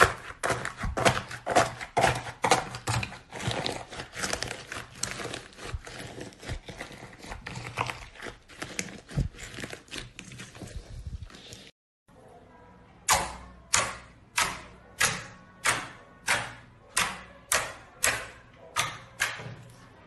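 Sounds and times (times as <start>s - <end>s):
slime crackling: 0.0s - 11.7s.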